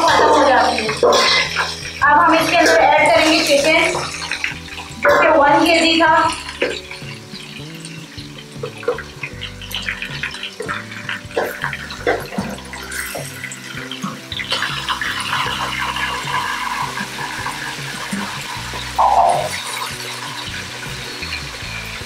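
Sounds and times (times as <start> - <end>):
background music: 0.0 - 22.0
oil sizzling: 0.0 - 22.0
chicken pieces dropping into oil: 0.9 - 2.0, 6.3 - 21.4.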